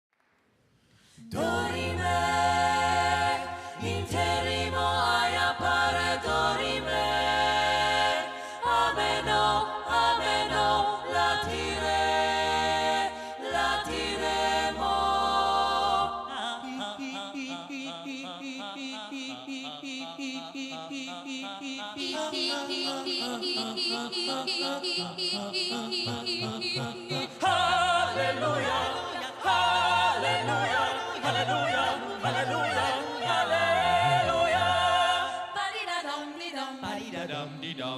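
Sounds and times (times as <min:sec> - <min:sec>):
a cappella group singing harmony: 0:01.0 - 0:37.9
deep sung bass line: 0:22.0 - 0:28.8.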